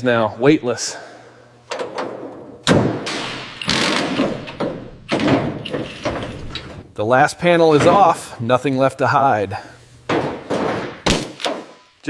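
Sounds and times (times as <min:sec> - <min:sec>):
heavy metal thuds and clanks: 0:01.7 - 0:06.9, 0:10.1 - 0:11.8.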